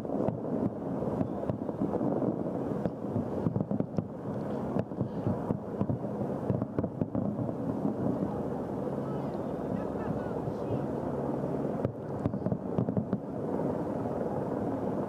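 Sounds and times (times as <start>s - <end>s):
fireworks shell bursts rumbling: 0.0s - 8.4s, 11.7s - 13.4s
sharp firework bangs: 0.0s - 8.4s, 11.8s - 13.4s.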